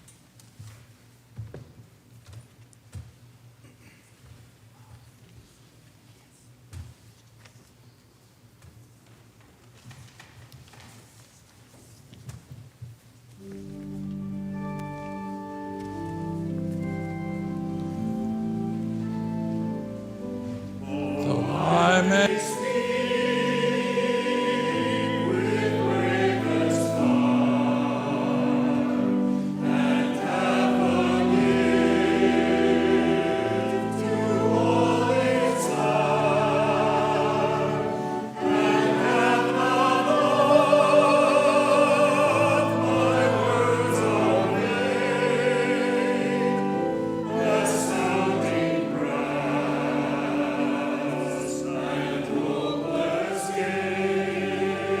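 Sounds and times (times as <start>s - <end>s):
church choir singing: 13.4s - 55.0s
organ chords: 13.4s - 55.0s.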